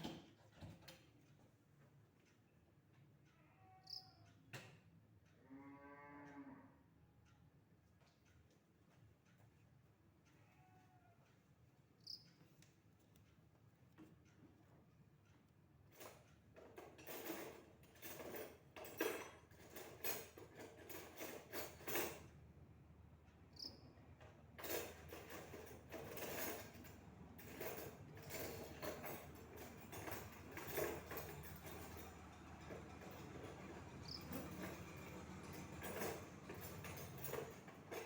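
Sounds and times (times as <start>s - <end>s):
hard objects knocking and rattling: 0.0s - 0.9s, 24.6s - 38.0s.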